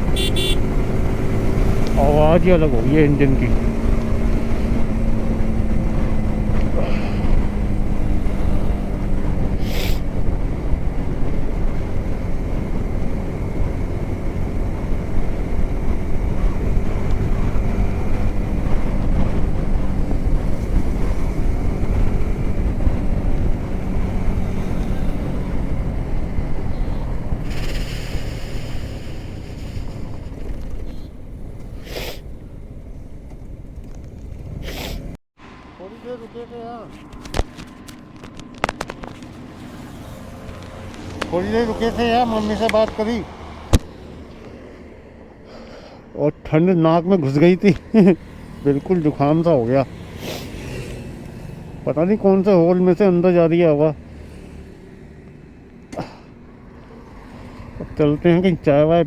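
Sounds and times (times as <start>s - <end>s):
motorcycle engine running: 0.0s - 44.6s
person talking: 1.9s - 3.7s, 41.2s - 43.4s.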